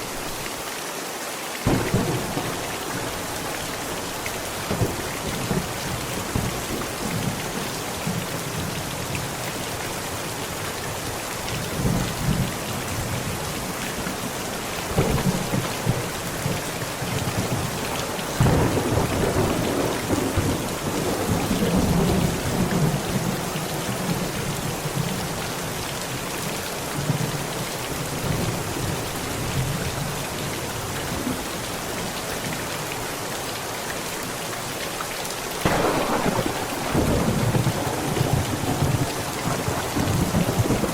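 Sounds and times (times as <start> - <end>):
heavy rain on a tent: 0.0 - 40.9
thunder rumbling: 1.6 - 8.7, 14.9 - 24.2, 35.6 - 40.9.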